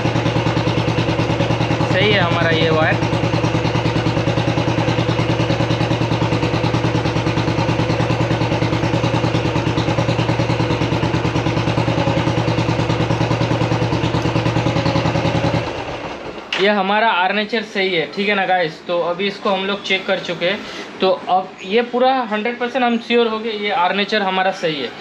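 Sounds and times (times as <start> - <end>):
motorcycle engine idling: 0.0 - 16.6.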